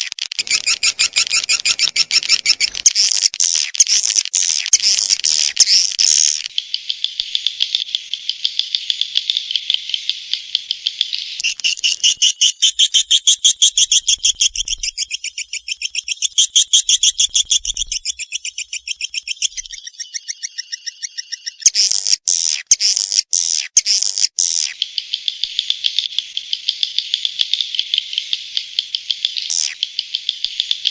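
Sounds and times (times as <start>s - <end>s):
high-pitched swiftlet chirping trills: 0.4s - 3.2s.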